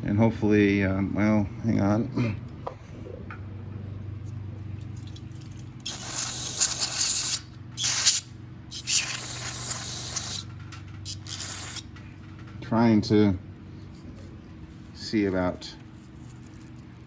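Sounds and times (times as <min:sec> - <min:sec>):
aerosol spray hissing: 0:05.9 - 0:10.5, 0:11.1 - 0:11.8.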